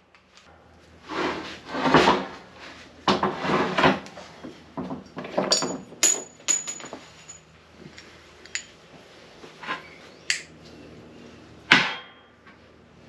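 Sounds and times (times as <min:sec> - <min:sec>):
metal parts clinking and knocking: 0:05.3 - 0:07.4.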